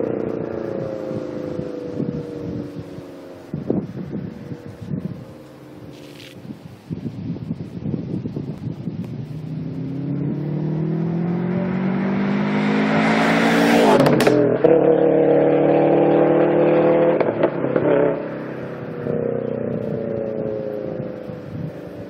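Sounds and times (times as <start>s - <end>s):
car accelerating past: 9.3s - 22.0s.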